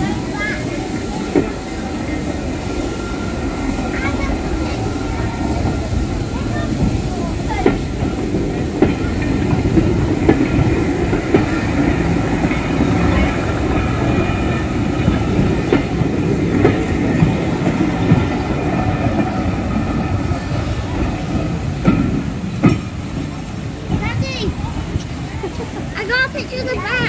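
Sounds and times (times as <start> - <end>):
train coaches rolling past: 0.0 - 27.0
wheels knocking over rail joints: 20.6 - 25.2.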